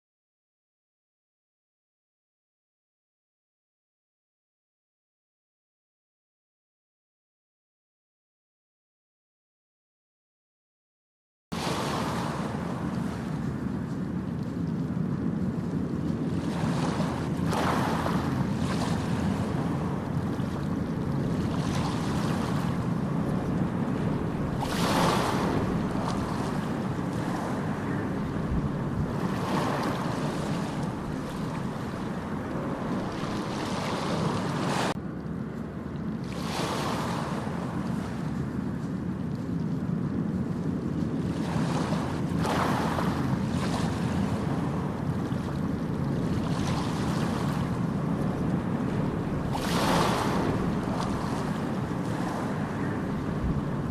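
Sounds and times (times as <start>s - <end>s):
ocean surf breaking on beach: 11.6s - 35.0s, 36.2s - 38.8s, 41.2s - 53.9s.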